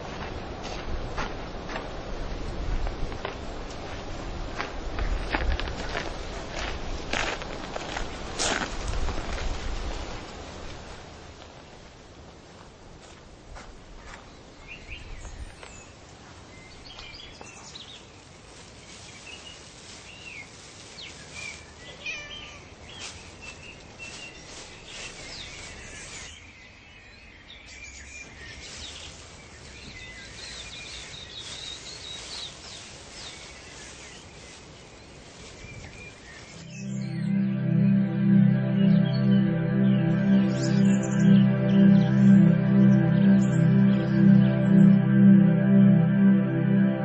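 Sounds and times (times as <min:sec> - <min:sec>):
birds chirping: 0:19.0 - 0:45.1.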